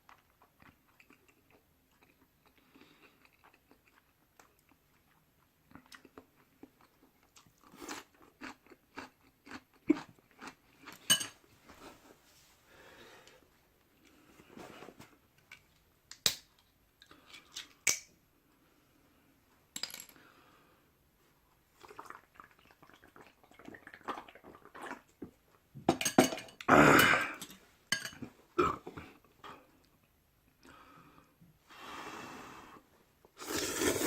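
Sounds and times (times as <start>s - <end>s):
person chewing noisily: 0.0s - 10.9s, 21.8s - 25.4s.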